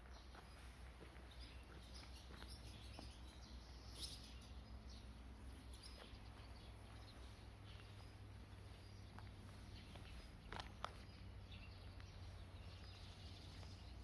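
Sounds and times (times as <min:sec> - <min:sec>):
soft ticks and rustles: 0:05.6 - 0:14.0.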